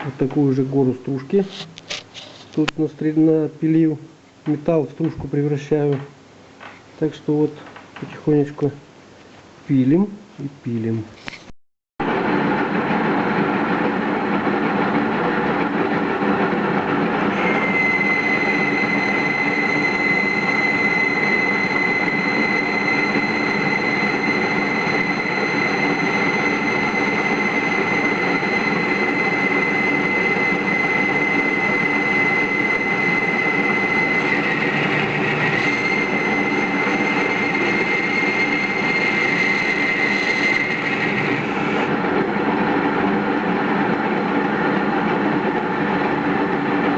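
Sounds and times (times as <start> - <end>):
metal lathe running: 12.1 - 46.9
high-pitched cutting squeal: 17.3 - 42.0.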